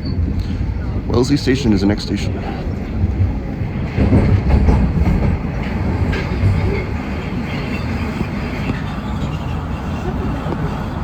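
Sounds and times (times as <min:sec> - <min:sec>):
subway train rumbling: 0:00.0 - 0:11.0
wheel clatter on rails: 0:02.7 - 0:11.0.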